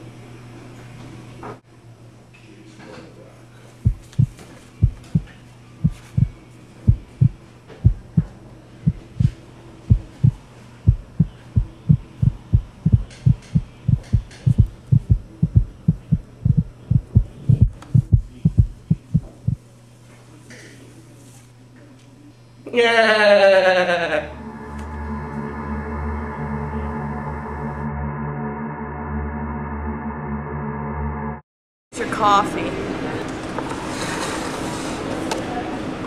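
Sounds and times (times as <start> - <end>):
low electrical hum: 0.0 - 26.9
heartbeat thumps: 3.8 - 19.6.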